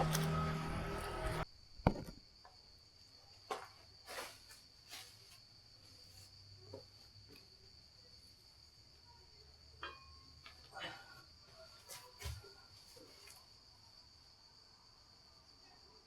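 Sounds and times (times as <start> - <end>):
low mechanical hum: 0.0 - 1.5
crickets chirring: 0.0 - 16.0.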